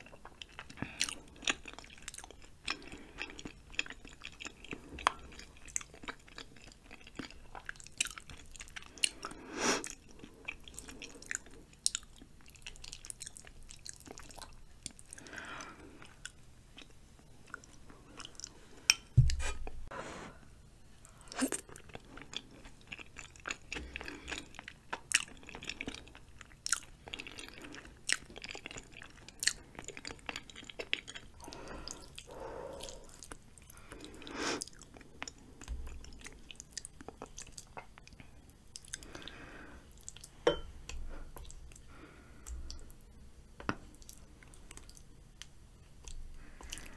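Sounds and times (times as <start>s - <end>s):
close chewing: 0.0s - 18.5s, 21.3s - 39.4s
heavy thump: 19.2s - 19.5s.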